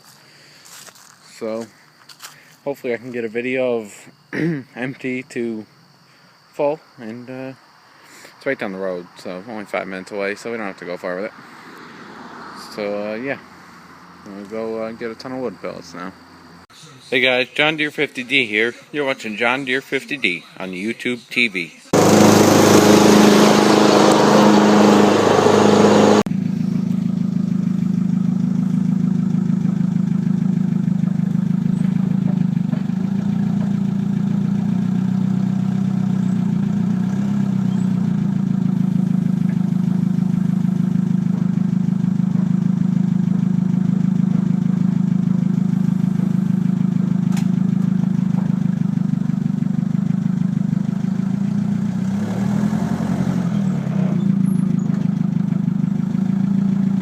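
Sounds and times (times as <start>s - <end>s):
pickup truck engine and road noise: 9.0s - 16.7s, 21.9s - 57.0s.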